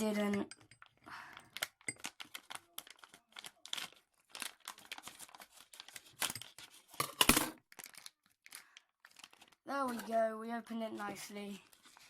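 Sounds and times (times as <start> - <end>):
plastic pack crinkling: 0.8 - 7.0, 7.6 - 10.3.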